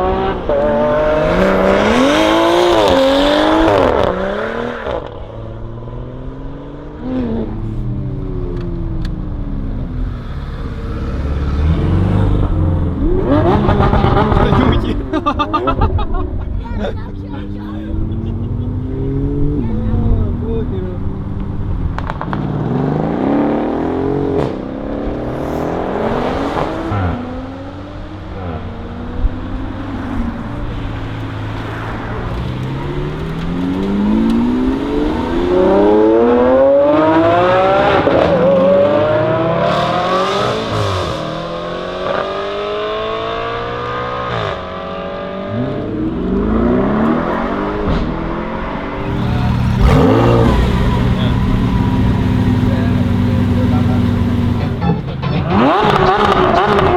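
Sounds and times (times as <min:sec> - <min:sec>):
car engine revving and accelerating: 0:00.0 - 0:16.1, 0:17.4 - 0:56.9.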